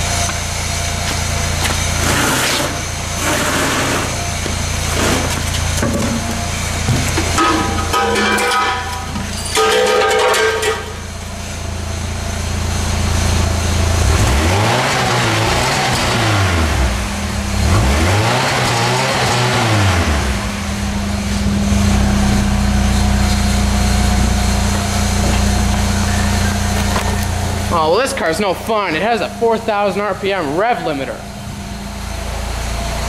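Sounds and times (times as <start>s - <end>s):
car engine idling and revving: 0.0s - 33.0s.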